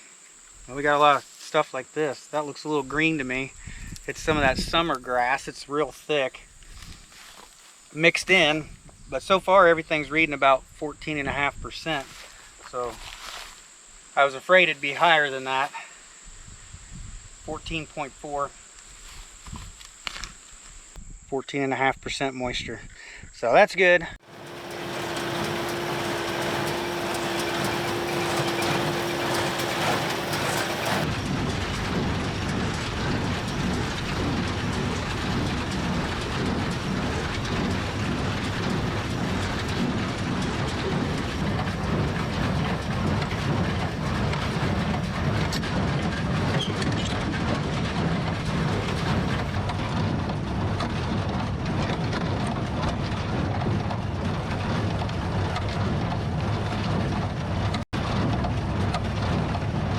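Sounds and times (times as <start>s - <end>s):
tractor and baler clattering: 24.2s - 59.8s.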